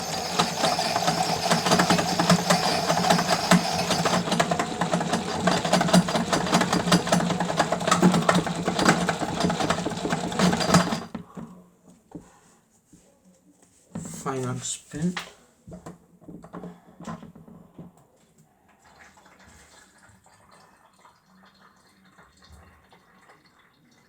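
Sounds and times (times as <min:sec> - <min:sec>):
small motor humming: 0:00.0 - 0:11.1
rattling clicks of drum and gears: 0:00.0 - 0:11.2.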